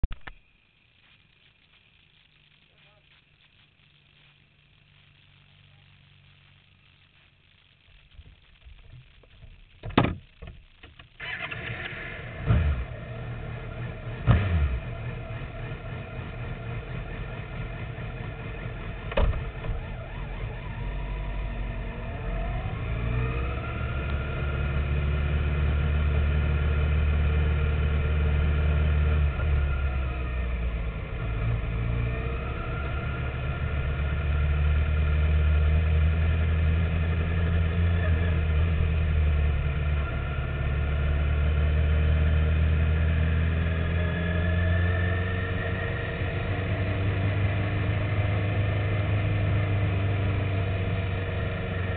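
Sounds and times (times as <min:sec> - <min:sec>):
motorcycle engine revving: 0:11.2 - 0:51.9.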